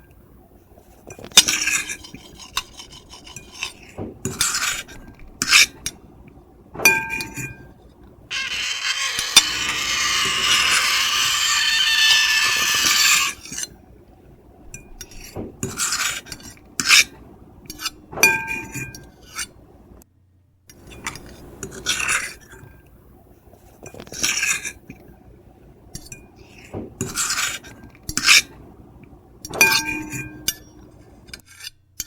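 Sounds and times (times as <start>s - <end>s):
fork and knife scraping a plate: 1.4s - 5.7s, 8.3s - 13.7s
cutlery clinking: 29.6s - 30.7s.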